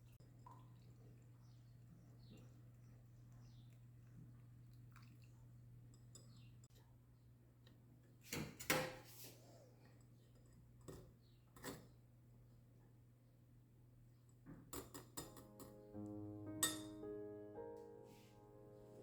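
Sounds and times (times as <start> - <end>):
low steady hum: 0.0 - 8.0
utensils and dishes clinking: 16.6 - 17.0.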